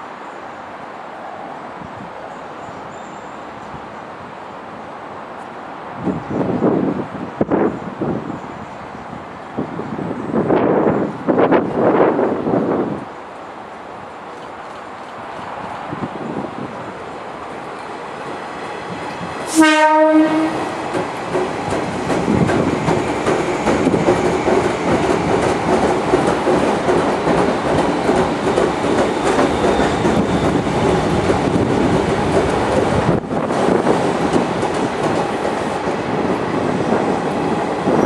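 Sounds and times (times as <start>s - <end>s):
train rumbling past: 0.0s - 38.0s
train horn blast: 19.5s - 20.8s.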